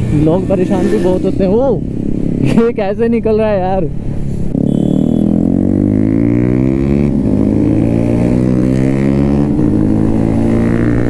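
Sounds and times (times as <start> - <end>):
motorcycle engine accelerating: 4.5 - 11.0.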